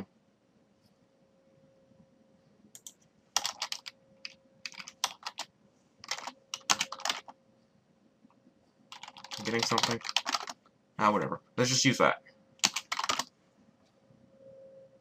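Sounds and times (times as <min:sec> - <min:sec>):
faint steady hum: 0:00.0 - 0:15.0
typing on computer keyboard: 0:02.8 - 0:07.3, 0:08.9 - 0:10.6, 0:12.6 - 0:13.3.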